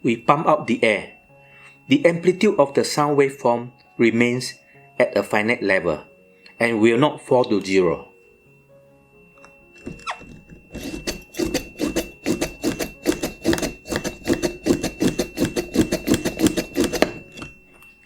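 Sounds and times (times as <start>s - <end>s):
high-pitched buzzer tone: 9.1s - 18.0s
hand vacuum pump strokes: 9.8s - 17.8s.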